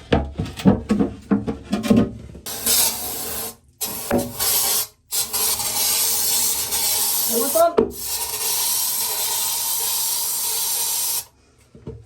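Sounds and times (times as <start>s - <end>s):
spray can hissing: 2.5s - 11.3s.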